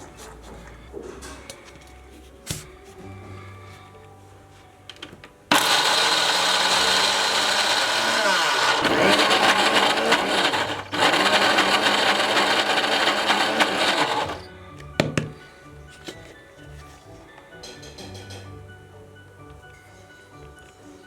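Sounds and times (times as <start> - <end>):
mixer grinder running: 5.5 - 14.5.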